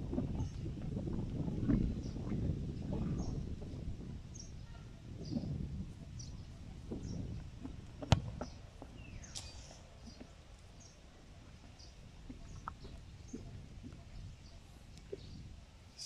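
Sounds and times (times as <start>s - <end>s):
small birds chirping: 4.3s - 16.0s.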